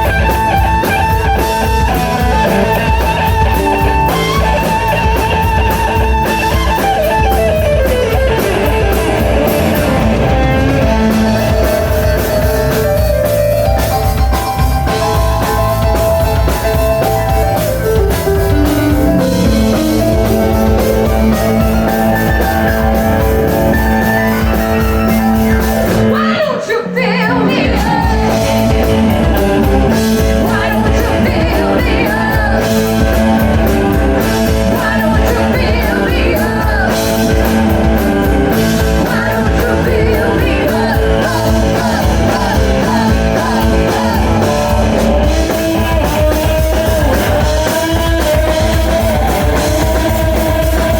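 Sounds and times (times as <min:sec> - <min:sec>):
rock band playing live: 0:00.0 - 0:50.9
person singing: 0:19.6 - 0:50.9.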